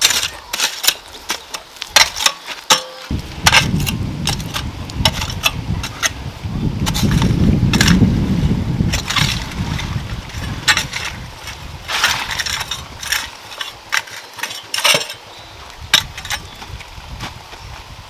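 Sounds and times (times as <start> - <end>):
hard objects knocking and scraping: 0.0 - 6.2, 6.8 - 8.1, 8.8 - 15.2.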